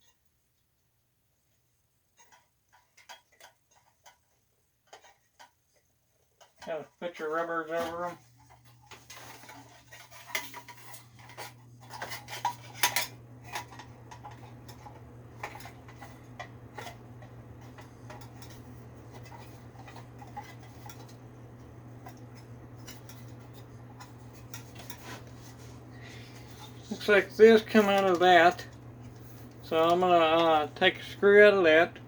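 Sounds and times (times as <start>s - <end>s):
steady low hum: 6.4s - 32.0s.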